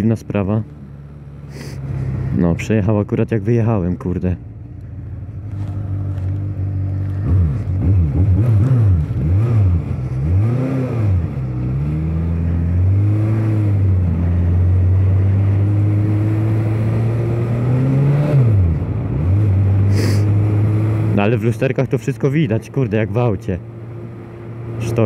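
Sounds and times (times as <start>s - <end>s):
motorcycle engine accelerating: 4.4s - 21.6s.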